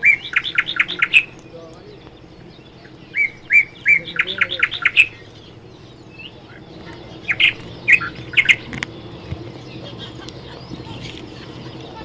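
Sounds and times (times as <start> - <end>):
parrot chirping squawks: 6.2 - 8.8.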